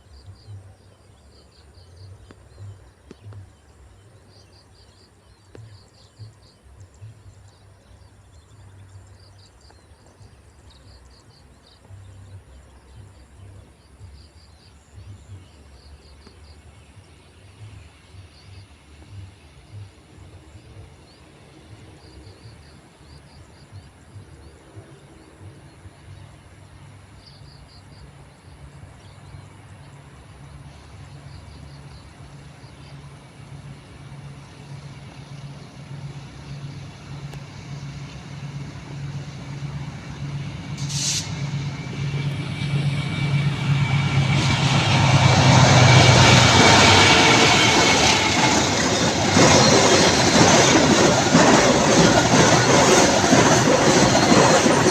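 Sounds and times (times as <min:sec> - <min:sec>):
diesel locomotive engine drone: 0:00.0 - 0:54.9
train wheels rushing: 0:30.6 - 0:54.9.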